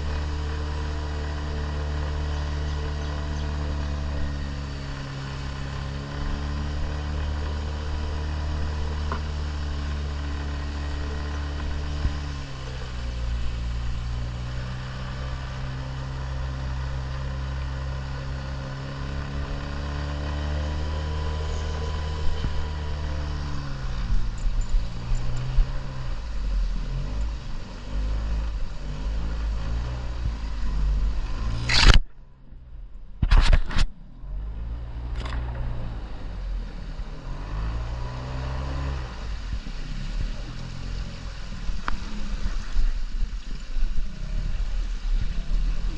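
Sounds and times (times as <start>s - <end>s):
engine running under load: 0.0s - 43.2s.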